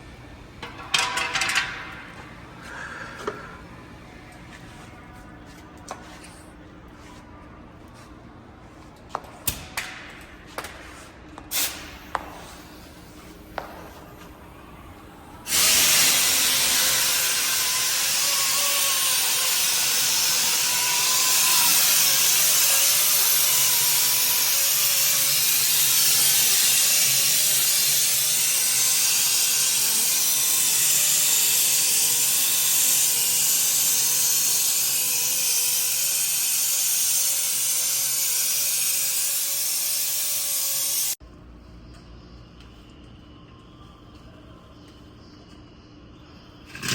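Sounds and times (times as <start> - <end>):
loud steady hiss: 15.5 - 18.8.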